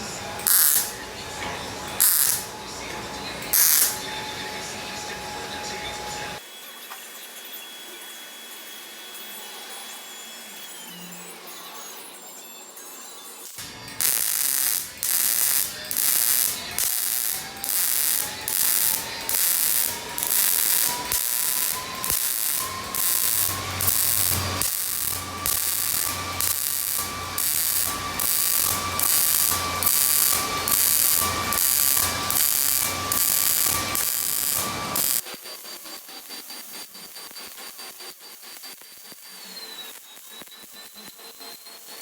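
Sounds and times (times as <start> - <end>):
welder hissing crackle: 0.0 - 4.4, 13.6 - 42.0.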